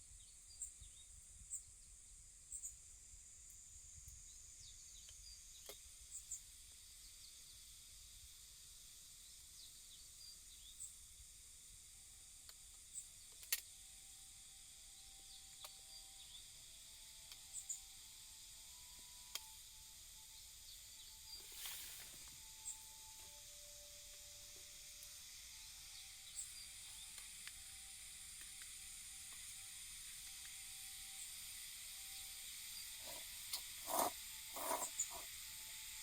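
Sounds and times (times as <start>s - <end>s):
steady high hiss: 2.2s - 36.0s
faint steady tones: 13.8s - 36.0s.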